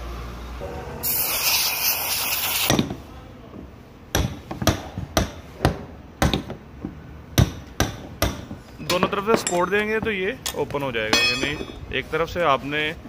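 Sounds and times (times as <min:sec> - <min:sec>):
loud hiss: 0:01.0 - 0:02.8
hammer knocking on metal ring: 0:11.2 - 0:11.9.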